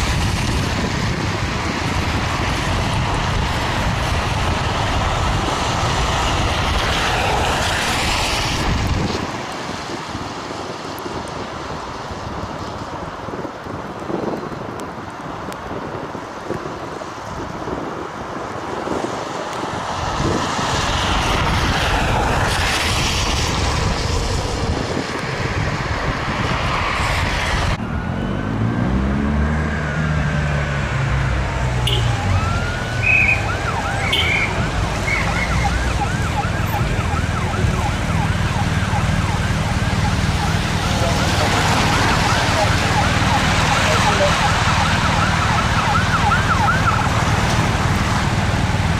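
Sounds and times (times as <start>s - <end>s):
road traffic passing: 0.0s - 48.9s
emergency sirens wailing: 27.5s - 48.9s
vehicle engine accelerating: 27.6s - 48.9s.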